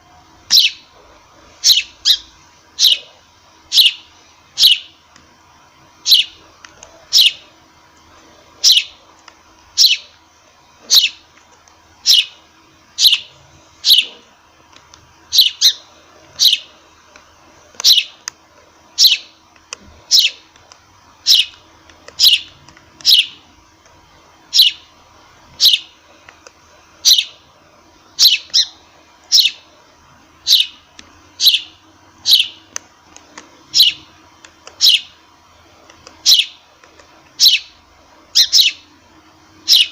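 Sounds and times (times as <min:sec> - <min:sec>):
sparrow chirping: 0:00.5 - 0:00.9, 0:01.6 - 0:05.0, 0:06.0 - 0:06.4, 0:07.1 - 0:07.5, 0:08.6 - 0:09.0, 0:09.8 - 0:10.2, 0:10.8 - 0:11.2, 0:12.0 - 0:12.4, 0:13.0 - 0:14.2, 0:15.3 - 0:16.7, 0:17.8 - 0:18.2, 0:19.0 - 0:19.3, 0:20.1 - 0:20.4, 0:21.2 - 0:23.5, 0:24.5 - 0:24.9, 0:25.6 - 0:26.0, 0:27.0 - 0:27.4, 0:28.2 - 0:29.6, 0:30.4 - 0:30.8, 0:31.4 - 0:32.7, 0:33.7 - 0:34.1, 0:34.7 - 0:35.2, 0:36.2 - 0:36.6, 0:37.4 - 0:38.9, 0:39.6 - 0:39.9.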